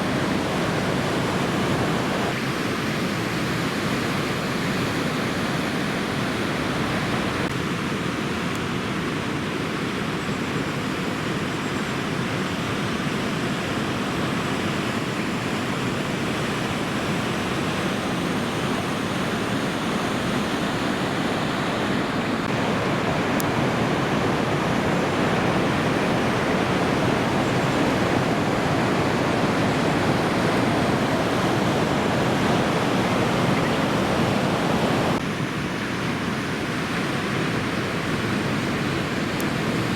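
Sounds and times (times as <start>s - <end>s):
ocean surf breaking: 0.0s - 7.5s, 15.8s - 39.9s.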